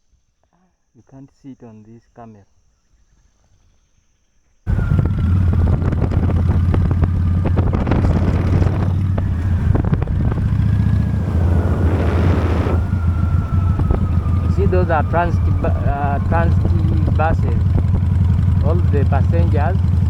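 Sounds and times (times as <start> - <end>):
motorcycle engine running: 4.7 - 20.0
wind buffeting microphone: 4.7 - 20.0.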